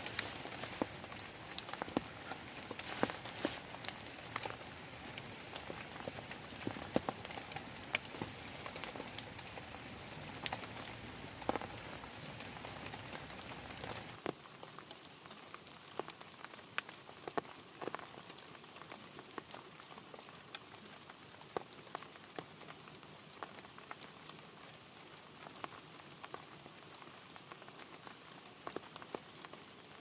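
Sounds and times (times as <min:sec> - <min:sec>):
drops ticking on plastic tarp: 0:00.0 - 0:15.0
rain hiss: 0:00.0 - 0:30.0.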